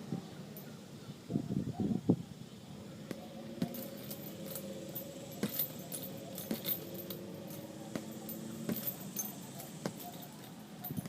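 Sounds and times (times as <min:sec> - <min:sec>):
metal chain clinking: 0:03.0 - 0:11.0.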